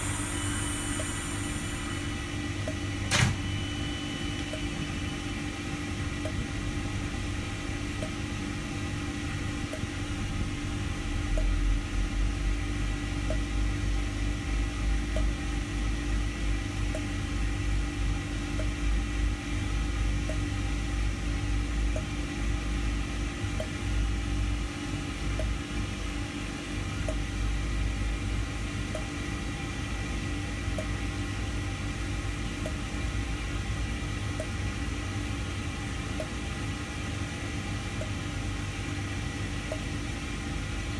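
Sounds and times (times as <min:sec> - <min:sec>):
train humming: 0:00.0 - 0:03.2.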